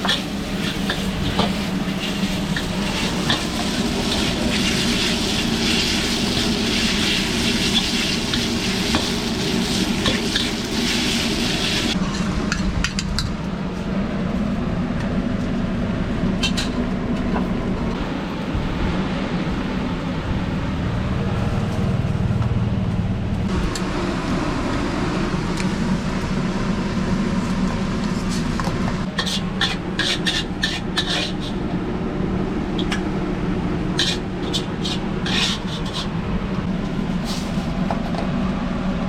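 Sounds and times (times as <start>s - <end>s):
food sizzling in a wok: 0.0s - 12.0s, 29.1s - 31.6s, 33.9s - 36.1s.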